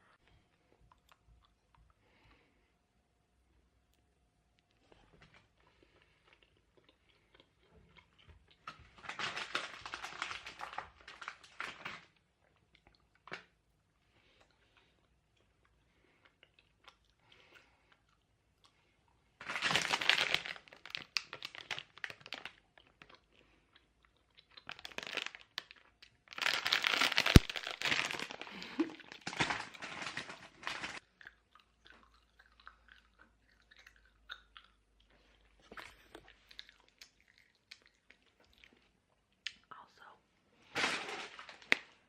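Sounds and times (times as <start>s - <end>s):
person chewing: 4.6s - 8.9s, 12.4s - 19.2s, 20.0s - 29.4s, 30.9s - 39.8s
crunching and crinkling: 4.8s - 13.6s, 19.4s - 38.9s, 40.6s - 42.0s.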